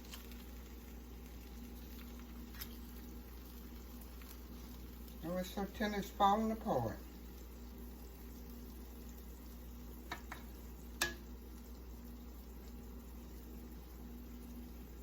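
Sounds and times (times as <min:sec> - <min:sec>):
kitchen hum: 0:00.0 - 0:15.0
utensil clicking on cookware: 0:10.1 - 0:11.2.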